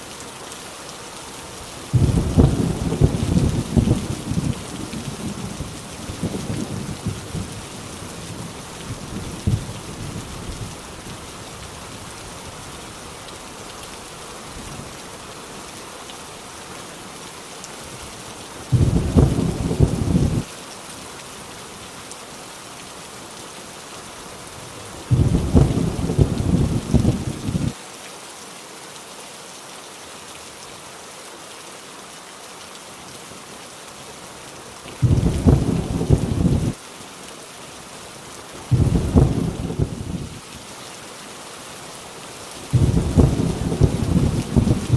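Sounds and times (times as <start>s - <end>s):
heavy rain on a tin roof: 0.0s - 44.9s
loud bursts of thunder: 1.9s - 7.6s, 18.7s - 20.5s, 25.1s - 27.7s, 35.0s - 36.8s, 38.7s - 40.3s, 42.7s - 44.9s
thunder rumbling: 1.9s - 10.7s, 18.7s - 20.5s, 25.1s - 27.7s, 35.0s - 36.8s, 38.7s - 40.4s, 42.7s - 44.9s.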